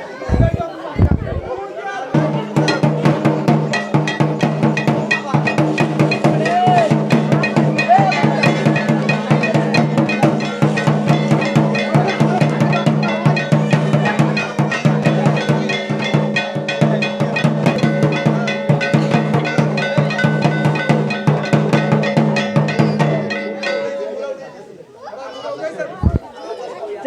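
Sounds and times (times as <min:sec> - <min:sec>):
dance music with fast drumming: 0:02.2 - 0:23.4.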